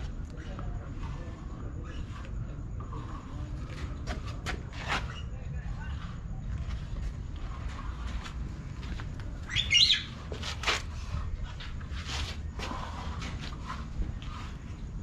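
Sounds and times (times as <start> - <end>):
steady low rumble: 0.0 - 15.0
bird warbling call: 9.5 - 10.1
bird chirping: 9.5 - 10.2.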